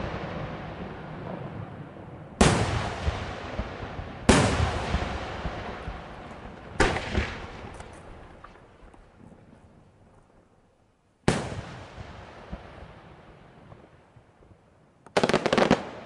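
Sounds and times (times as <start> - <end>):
firework crackles: 0.0 - 10.5, 15.1 - 16.0.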